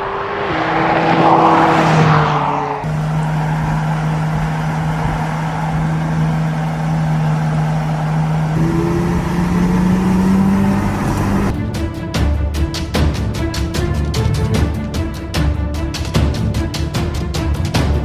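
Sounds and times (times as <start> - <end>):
car engine running: 0.0 - 11.7
music: 11.5 - 18.0.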